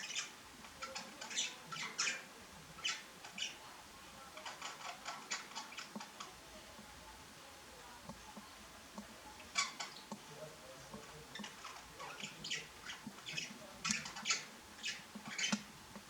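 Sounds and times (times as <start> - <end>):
budgerigars chirping: 0.0 - 3.7, 4.4 - 6.3, 9.4 - 15.7.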